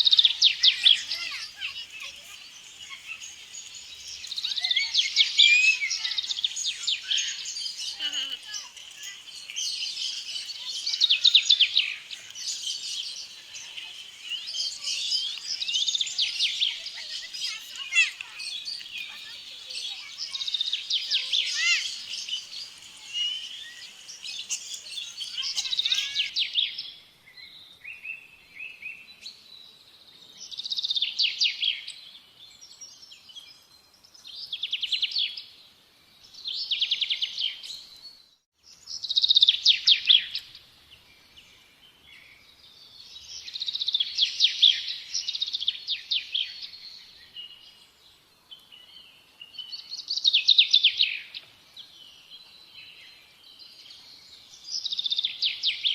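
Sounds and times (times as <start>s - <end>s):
birds chirping: 0.0s - 26.3s.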